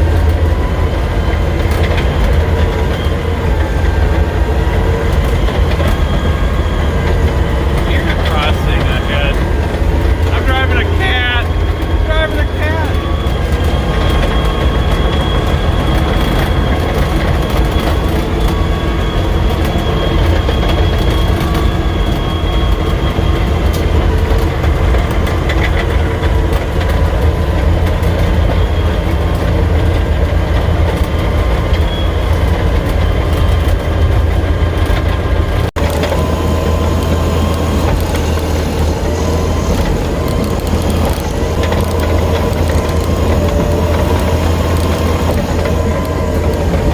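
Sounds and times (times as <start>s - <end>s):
bulldozer diesel engine running: 0.0s - 46.9s
steel tracks clanking: 0.0s - 46.9s.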